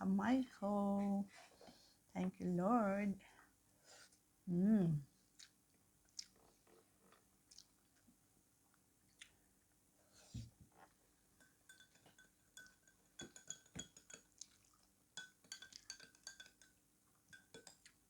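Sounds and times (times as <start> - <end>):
cutlery clinking on a dish: 11.4 - 18.0.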